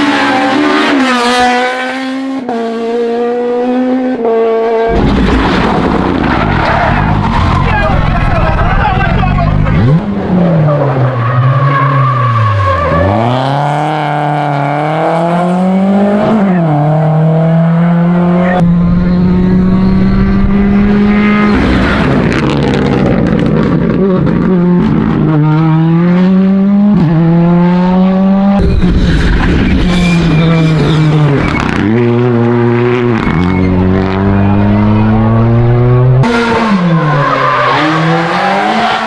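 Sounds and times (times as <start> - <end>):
rally car engines at full throttle: 0.0 - 39.0
tyres squealing: 29.2 - 32.1.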